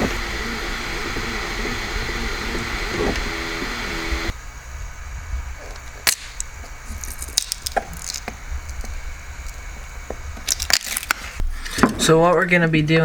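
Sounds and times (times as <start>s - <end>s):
low steady hum: 0.0s - 13.0s
small hard objects clicking: 6.0s - 9.6s, 10.4s - 11.8s.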